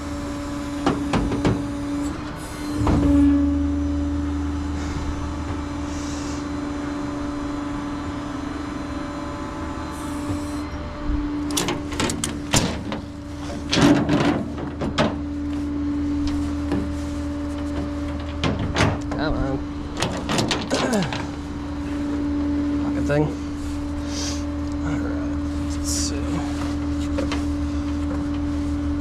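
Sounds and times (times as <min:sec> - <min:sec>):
tow truck engine drone: 0:00.0 - 0:29.0
knocks and clatter: 0:11.5 - 0:15.6, 0:16.2 - 0:19.4, 0:20.0 - 0:21.4.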